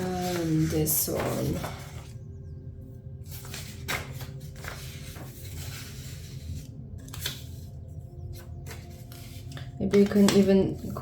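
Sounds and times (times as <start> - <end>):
scissors cutting paper: 8.6 - 11.0.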